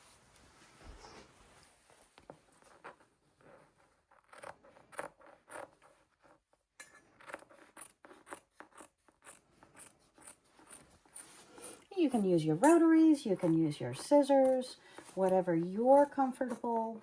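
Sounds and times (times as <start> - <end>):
scissors snipping fabric: 7.2 - 17.0.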